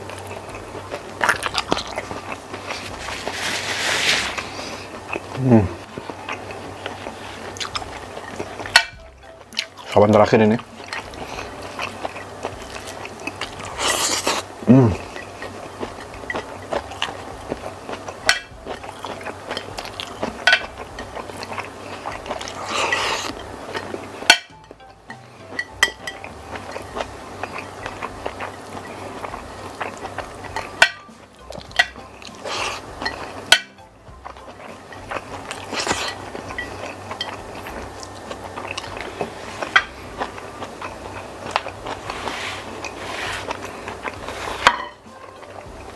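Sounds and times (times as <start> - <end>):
person chewing wetly: 0.0 - 3.4, 4.2 - 45.0
plate clinking: 15.1 - 17.4, 18.2 - 40.9, 41.5 - 45.6.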